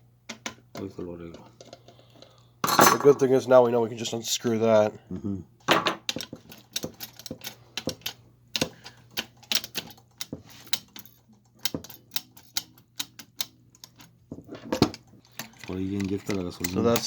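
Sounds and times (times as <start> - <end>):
small metal parts clinking: 6.1 - 14.1, 14.9 - 17.0.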